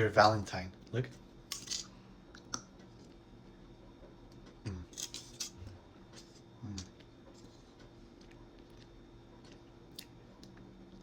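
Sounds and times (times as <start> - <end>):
chewing chocolate: 7.8 - 11.0.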